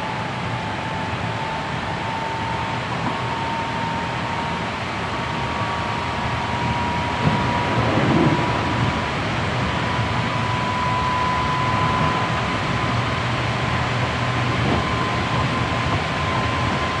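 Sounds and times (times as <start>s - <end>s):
high-pitched whine: 0.0s - 17.0s
wheel-on-rail rumble: 5.8s - 17.0s.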